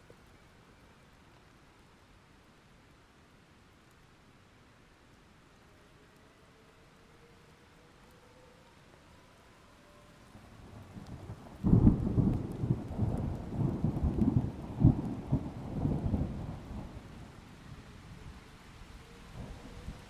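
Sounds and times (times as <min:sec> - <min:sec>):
thunder rumbling and clapping: 0:10.9 - 0:17.1.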